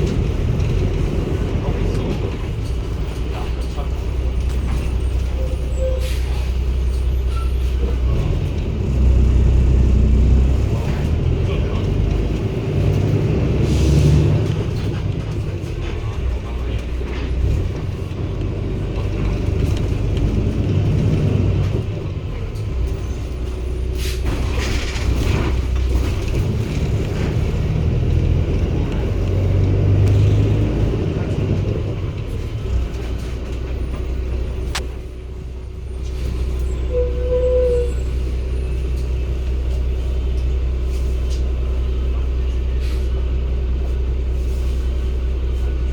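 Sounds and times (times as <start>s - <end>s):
bus diesel engine rumbling: 0.0s - 45.9s
air brake hiss: 24.0s - 24.4s.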